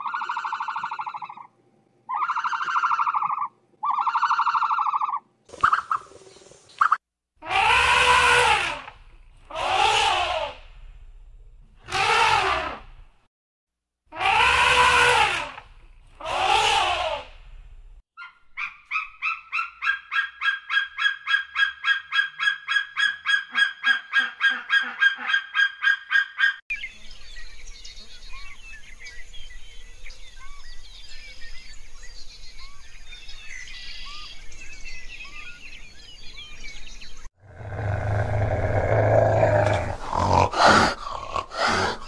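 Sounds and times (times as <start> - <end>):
bird calling in fast series: 0.0 - 6.1, 18.2 - 26.6
loud elephant calls: 7.4 - 10.7, 11.8 - 12.9, 14.1 - 17.4, 37.5 - 42.0.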